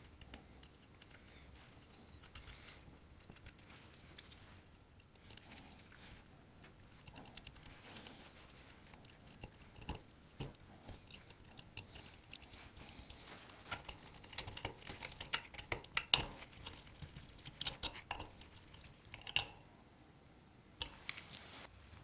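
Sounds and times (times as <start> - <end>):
light clicks and taps: 6.6 - 19.6.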